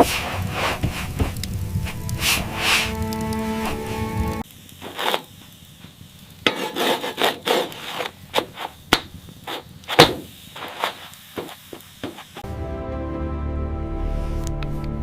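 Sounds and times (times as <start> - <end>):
wood scraping: 0.0 - 5.3, 6.4 - 12.4.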